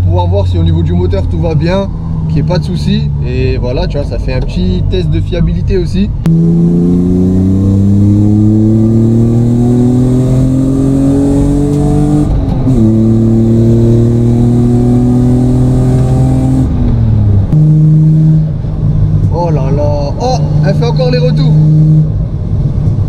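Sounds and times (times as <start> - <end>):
car engine and exhaust accelerating: 0.0 - 23.0.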